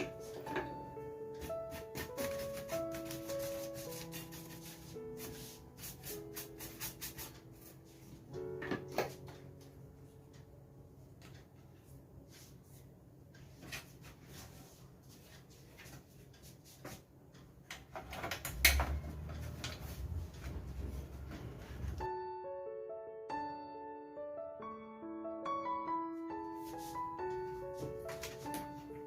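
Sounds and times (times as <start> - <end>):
plastic parts clicking and knocking: 17.7 - 19.8.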